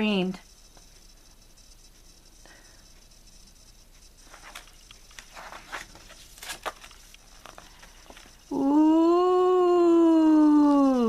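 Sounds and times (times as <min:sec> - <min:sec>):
paper rustling and clicks: 0:04.3 - 0:08.3
woman making ghost ooh voice: 0:08.5 - 0:11.0.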